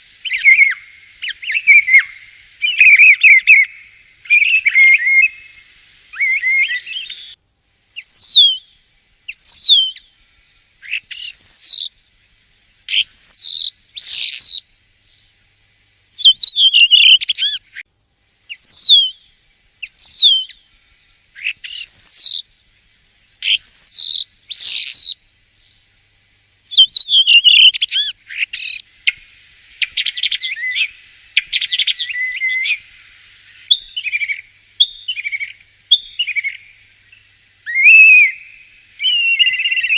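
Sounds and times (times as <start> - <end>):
starling whistles and chatter: 37.7 - 39.9.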